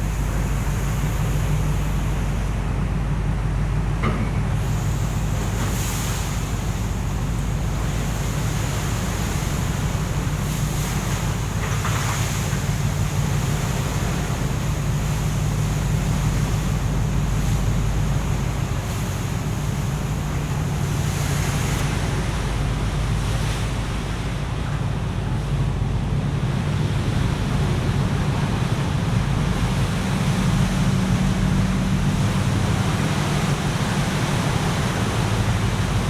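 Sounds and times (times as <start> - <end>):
sea wash: 0.0 - 36.0
ship engine humming: 0.0 - 36.0.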